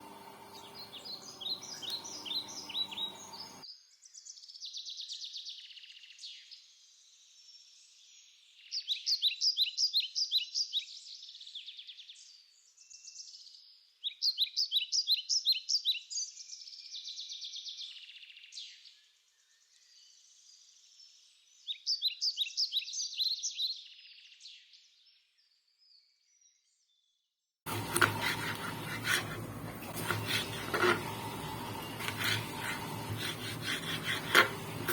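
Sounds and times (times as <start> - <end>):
songbird singing: 0.0 - 27.1
loud scraping noise: 27.7 - 34.9.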